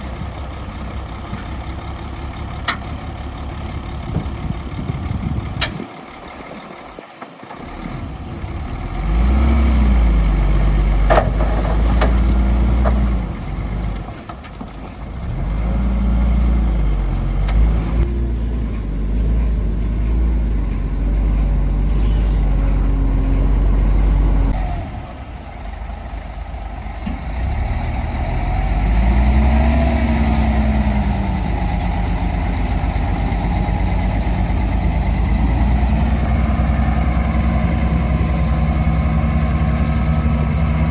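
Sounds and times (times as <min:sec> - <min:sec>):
diesel engine revving under load: 0:00.0 - 0:40.9.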